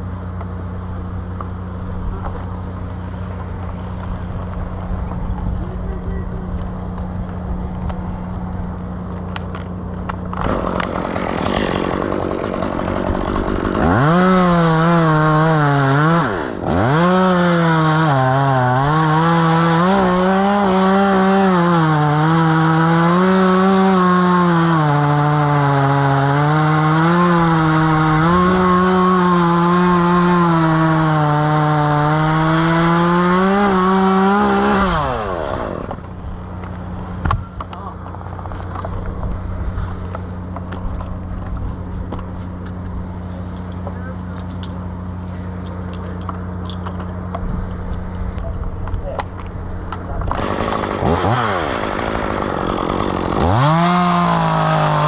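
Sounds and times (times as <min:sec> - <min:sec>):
chainsaw revving: 0:10.2 - 0:37.4, 0:50.2 - 0:55.0.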